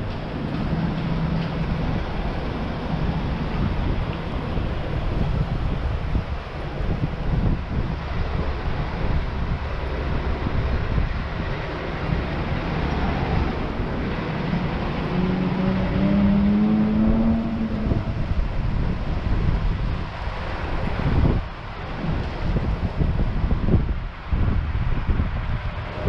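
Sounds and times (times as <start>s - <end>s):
wind noise on microphone: 0.0s - 26.0s
motor vehicle passing: 10.6s - 21.4s.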